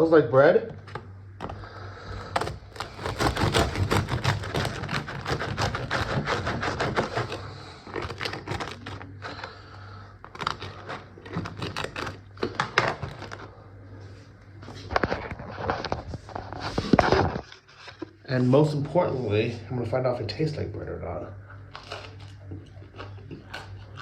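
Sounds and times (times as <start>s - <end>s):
knife sawing through bread crust: 1.4s - 13.4s.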